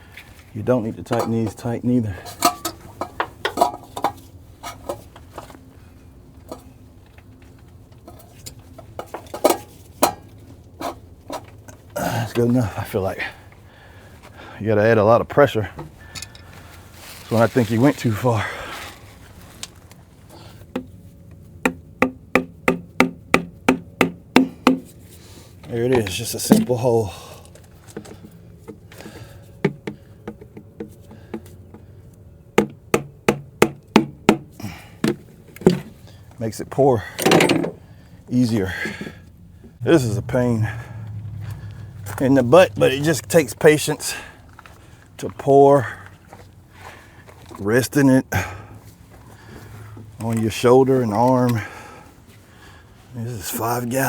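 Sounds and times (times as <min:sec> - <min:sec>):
steady low hum: 0:18.4 - 0:45.3
sharp hammer-like knocks: 0:21.7 - 0:24.9
metal clicks and knocks: 0:37.2 - 0:37.8.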